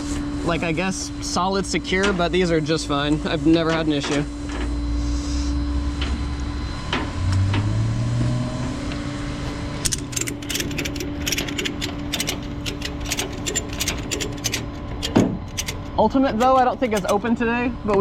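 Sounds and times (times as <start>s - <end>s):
truck engine humming: 5.8s - 18.0s
ratchet clicking: 9.8s - 17.4s.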